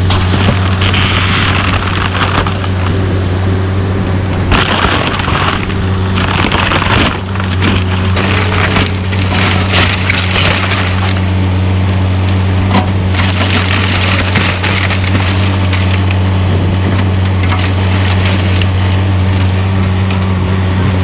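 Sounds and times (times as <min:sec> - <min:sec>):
diesel engine running: 0:00.0 - 0:21.0
wood crushing and splintering: 0:00.0 - 0:21.0.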